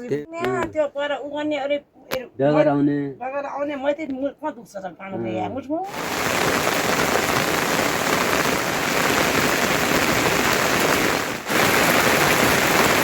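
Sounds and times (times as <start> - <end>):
heavy rain falling: 5.9 - 13.0.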